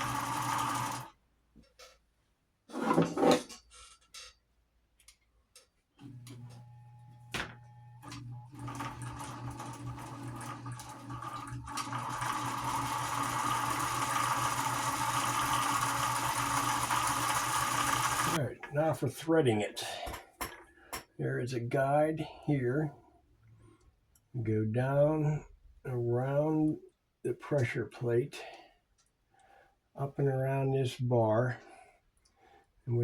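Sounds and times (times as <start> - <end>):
sewing machine motor running: 0.0 - 1.1, 8.0 - 18.4.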